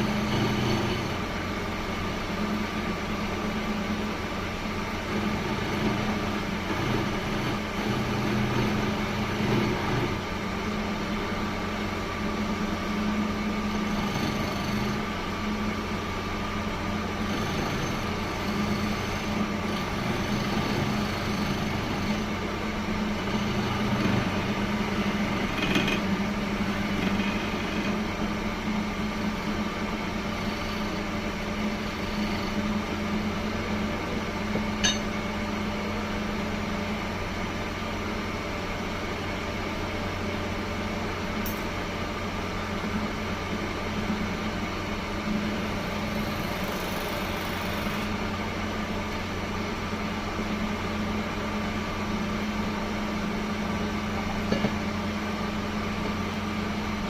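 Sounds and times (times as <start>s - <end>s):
electric motor humming: 0.0s - 1.3s, 5.1s - 10.2s, 17.2s - 22.4s, 23.0s - 28.0s.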